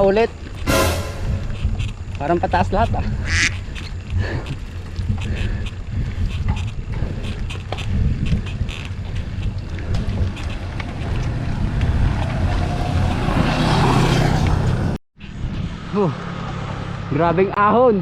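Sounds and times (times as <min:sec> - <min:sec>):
wind buffeting microphone: 0:00.0 - 0:15.8
motor vehicle passing: 0:08.7 - 0:17.4.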